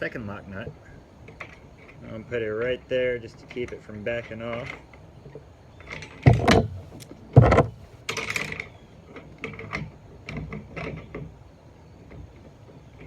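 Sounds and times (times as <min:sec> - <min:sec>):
light metal clicks: 0:03.5 - 0:11.1
metal hardware knocks: 0:06.0 - 0:08.6.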